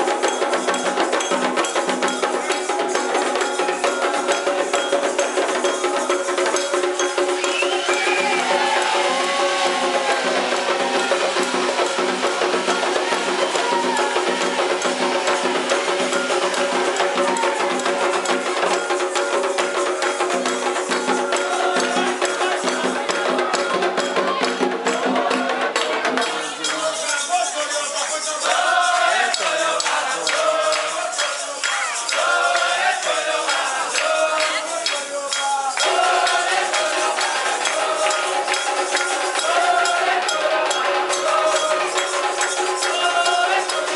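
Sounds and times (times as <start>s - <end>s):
percussion music with rattles: 0.0s - 43.9s
tapping wood-block rhythm: 0.0s - 43.9s
voices: 0.0s - 43.9s.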